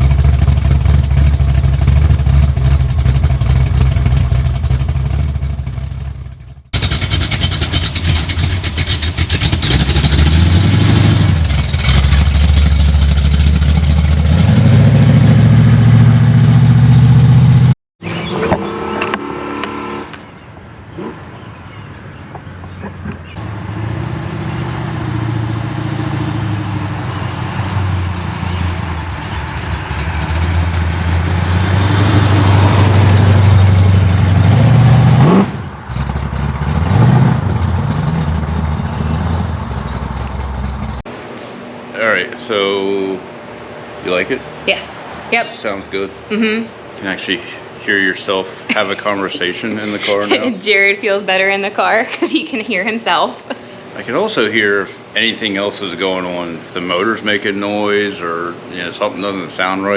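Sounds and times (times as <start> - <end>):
car engine revving: 0.0 - 20.3, 23.0 - 41.2
car engine rumbling: 0.0 - 59.9.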